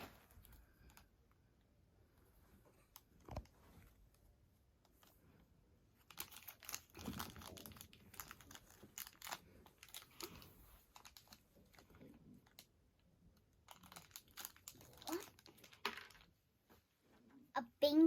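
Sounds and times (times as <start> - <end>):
toy packaging crinkling and tearing: 6.0 - 16.3.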